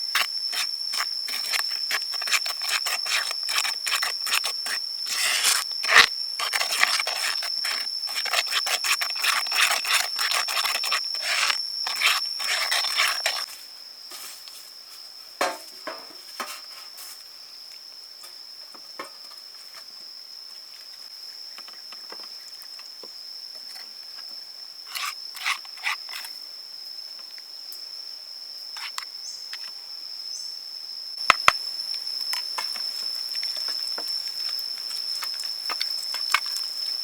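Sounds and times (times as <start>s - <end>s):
high-pitched insect drone: 0.0s - 13.9s, 20.1s - 37.0s
rapid scraping strokes: 0.2s - 13.5s, 24.9s - 26.3s.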